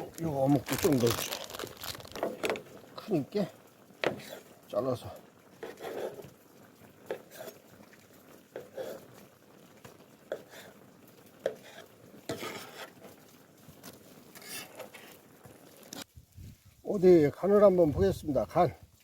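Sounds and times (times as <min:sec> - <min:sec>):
utensils scraping cast-iron pan: 0:05.6 - 0:06.3, 0:07.0 - 0:07.7, 0:11.4 - 0:13.2, 0:14.3 - 0:16.0.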